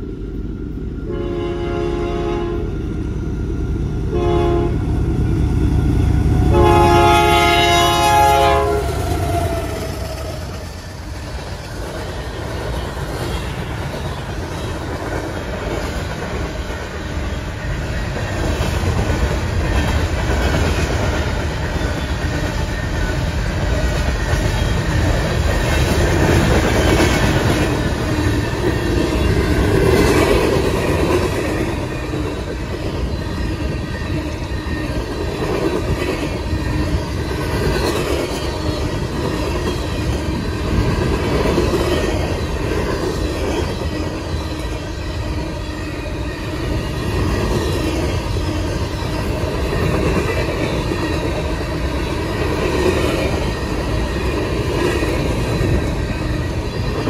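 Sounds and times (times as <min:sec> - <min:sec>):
train rumbling and clacking past: 0:00.0 - 0:57.0
locomotive air horn: 0:01.1 - 0:02.7, 0:04.1 - 0:04.8, 0:06.5 - 0:10.0.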